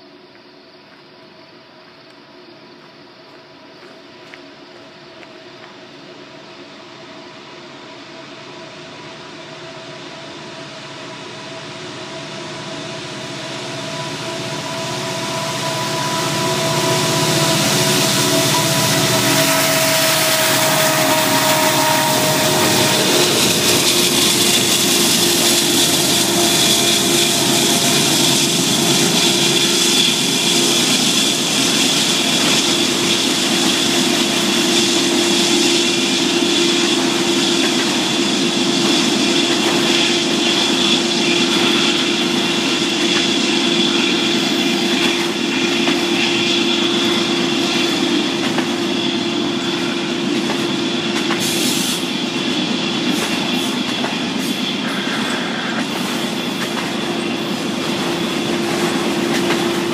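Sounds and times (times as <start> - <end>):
wheels rushing on rail: 0.0 - 59.9
locomotive whine: 1.6 - 59.9
diesel locomotives passing: 3.2 - 59.9.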